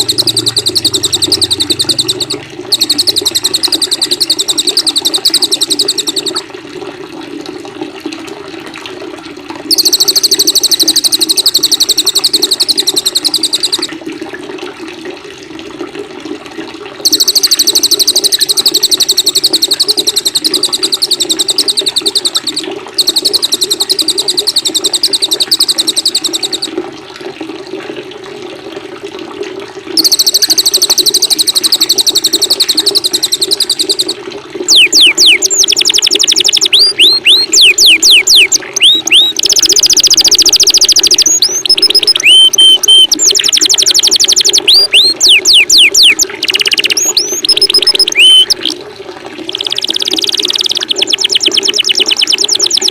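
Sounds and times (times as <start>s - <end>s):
songbird rapid high trills: 0.0s - 6.4s, 9.7s - 13.9s, 17.1s - 26.7s, 30.0s - 48.7s
running water: 0.0s - 52.9s.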